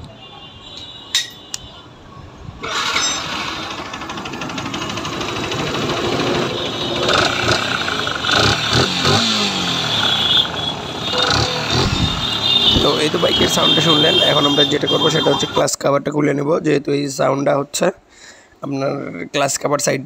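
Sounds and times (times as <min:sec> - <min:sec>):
motorcycle engine starting and revving: 0:02.6 - 0:13.8.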